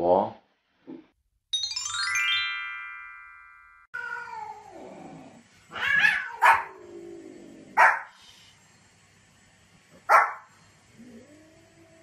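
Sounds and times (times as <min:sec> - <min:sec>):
cat yowling: 0:04.0 - 0:04.8, 0:05.7 - 0:06.8
dog barking: 0:06.0 - 0:06.8, 0:07.8 - 0:08.1, 0:10.1 - 0:10.5.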